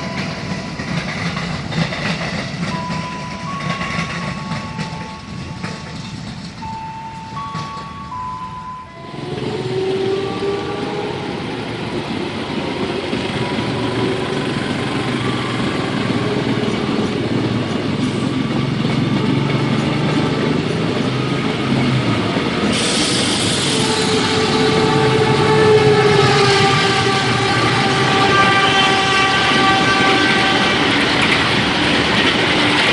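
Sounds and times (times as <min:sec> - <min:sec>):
train rumbling on track: 0:00.0 - 0:32.9
long held horn tones: 0:08.7 - 0:11.6, 0:22.8 - 0:31.0
hiss: 0:22.6 - 0:24.1.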